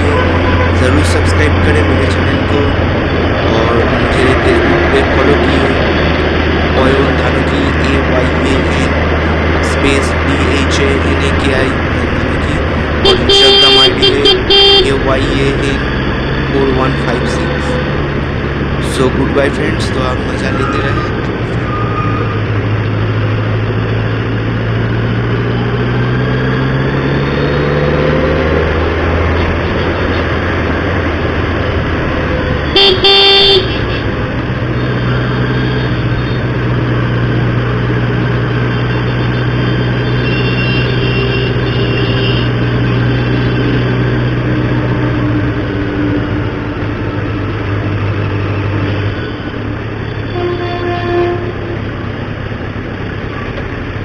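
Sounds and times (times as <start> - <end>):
vehicle horn blast: 0.0 - 1.0, 13.0 - 15.1, 32.7 - 34.1, 39.1 - 43.6, 50.2 - 51.8.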